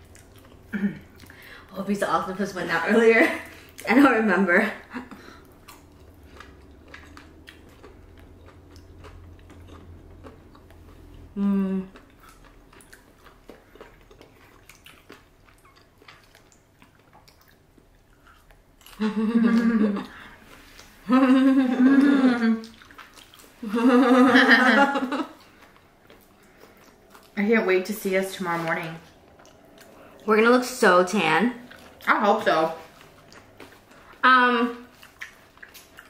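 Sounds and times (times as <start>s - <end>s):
chewing with wet clicks: 0.0s - 1.7s, 5.1s - 19.0s, 20.0s - 21.0s, 22.6s - 23.6s, 25.4s - 28.0s, 29.0s - 34.3s, 34.9s - 36.0s
person vocalizing mm: 0.7s - 1.2s, 11.3s - 12.1s, 21.0s - 22.8s.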